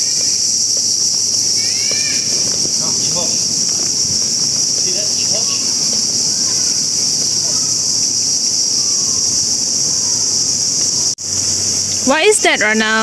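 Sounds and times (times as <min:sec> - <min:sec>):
insects droning: 0:00.0 - 0:13.0
faint voices: 0:01.7 - 0:11.0.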